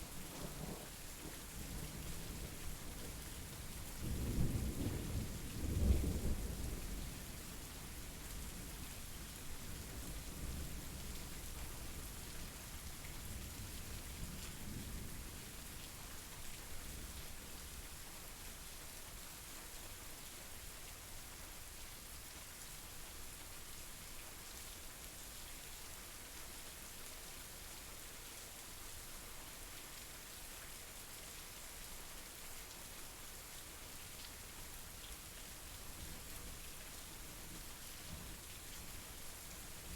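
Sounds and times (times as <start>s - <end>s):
steady rain falling: 0.0s - 39.9s
low rumble of thunder: 0.1s - 11.7s.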